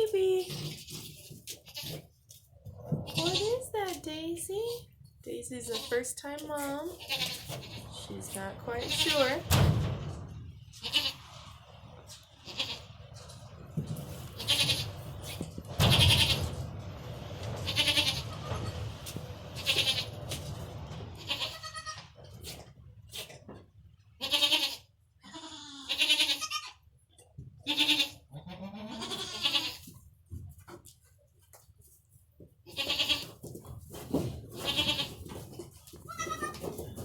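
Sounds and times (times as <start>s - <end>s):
goats bleating: 12.4s - 12.9s, 14.4s - 14.9s, 24.2s - 26.8s, 27.6s - 29.9s, 32.7s - 33.4s, 34.6s - 35.2s, 36.1s - 36.8s.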